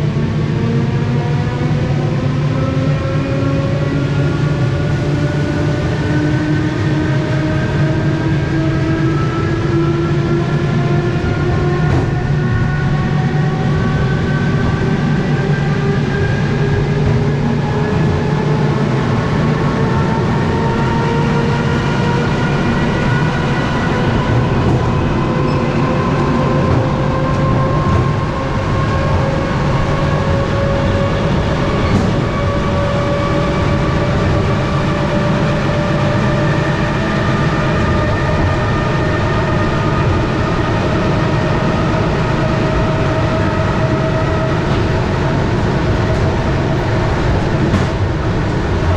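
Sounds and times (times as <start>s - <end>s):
wheels rumbling on rails: 0.0s - 48.9s.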